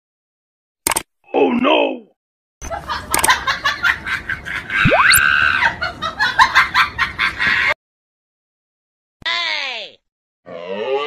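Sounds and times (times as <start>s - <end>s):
cartoon voice laughing and chattering: 4.8s - 5.2s
whistle sliding upward: 4.8s - 5.3s.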